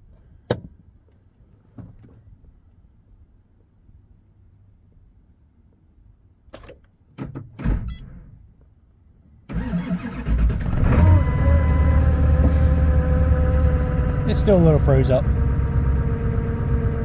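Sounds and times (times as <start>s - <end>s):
diesel engine starting: 9.5s - 17.0s.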